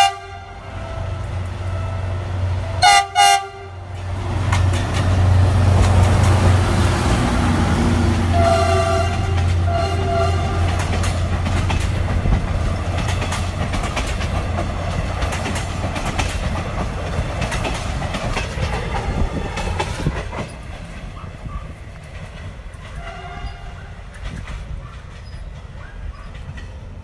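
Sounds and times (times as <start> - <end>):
train horn blasts: 0.0 - 4.0, 8.2 - 11.1, 22.9 - 24.0
diesel locomotive engine: 0.0 - 27.0
train wheels clickety-clack: 4.0 - 27.0.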